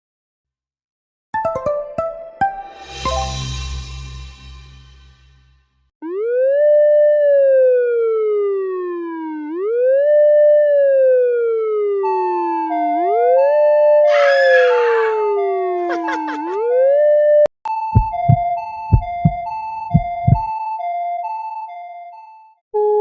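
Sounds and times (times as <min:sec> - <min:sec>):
two-tone hi-lo siren: 0:06.0 - 0:13.4
police siren wailing: 0:14.1 - 0:16.6.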